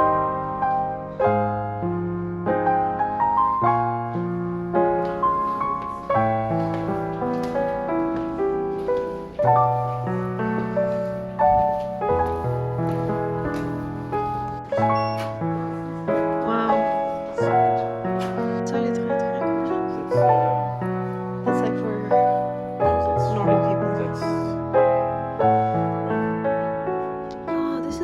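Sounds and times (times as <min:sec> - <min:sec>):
gentle piano music: 0:00.0 - 0:28.0.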